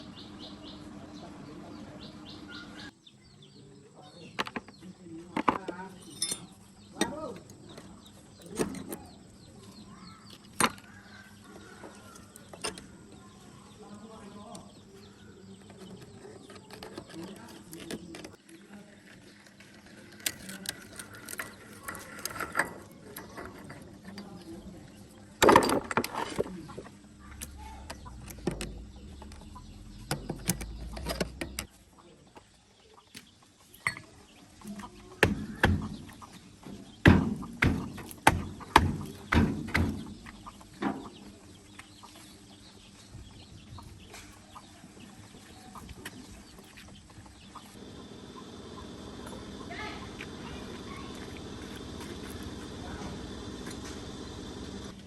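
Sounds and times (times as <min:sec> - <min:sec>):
metal tools clanking on metal: 0:05.4 - 0:09.2, 0:20.1 - 0:31.7, 0:33.8 - 0:34.1.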